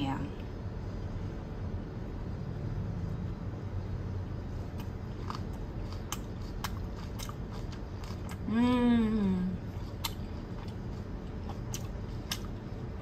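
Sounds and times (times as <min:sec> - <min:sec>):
steady low hum: 0:00.0 - 0:13.0
person chewing: 0:04.6 - 0:13.0.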